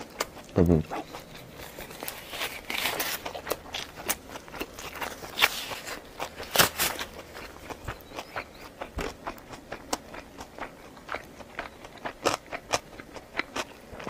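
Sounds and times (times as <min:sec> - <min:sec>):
rustling: 0:01.0 - 0:03.6.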